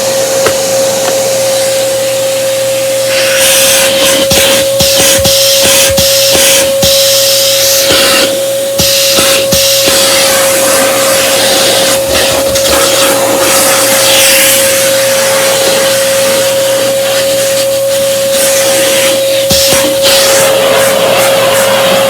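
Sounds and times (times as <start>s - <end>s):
upright vacuum cleaner running: 0.0s - 22.0s.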